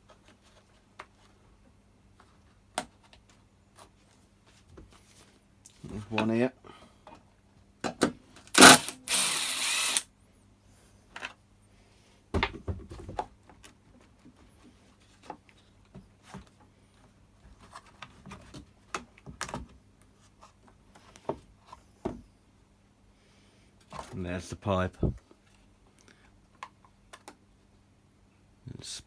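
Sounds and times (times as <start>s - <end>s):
plastic parts and tools clicking: 8.6s - 10.0s
power driver motor: 8.6s - 10.1s.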